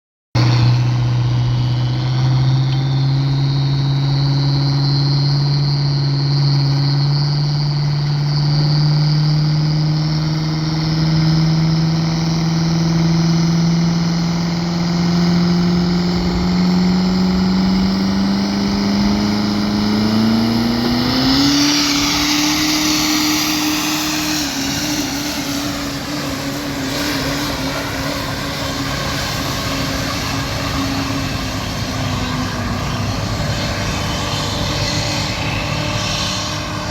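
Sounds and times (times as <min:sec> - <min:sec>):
diesel truck engine under load: 0:00.4 - 0:34.3
high turbo whine: 0:00.4 - 0:36.9
loud rushing hiss: 0:20.6 - 0:31.1.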